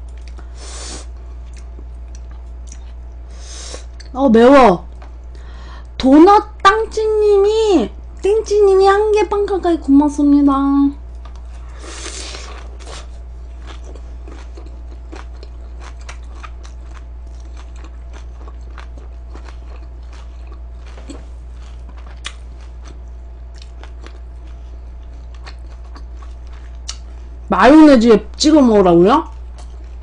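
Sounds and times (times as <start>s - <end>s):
chewing crunchy food: 0.0s - 4.2s, 11.0s - 27.4s, 29.2s - 30.0s.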